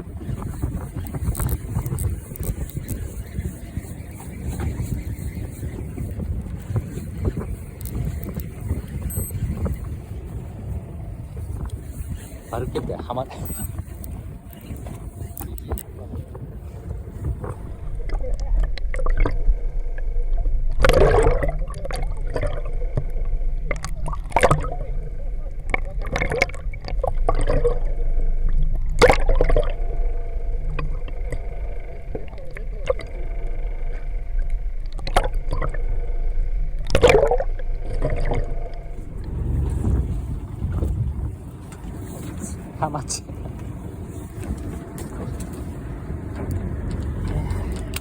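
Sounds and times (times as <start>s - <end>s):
low rumble: 0.0s - 48.0s
water splashing and gurgling: 0.0s - 48.0s
water splash: 28.5s - 30.0s.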